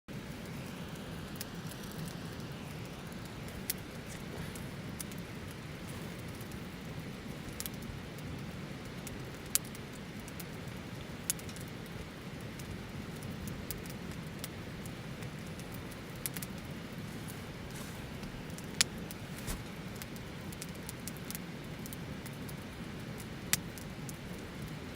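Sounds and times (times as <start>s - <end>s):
campfire flames rumbling: 0.2s - 24.9s
fire crackling and popping: 0.3s - 24.8s.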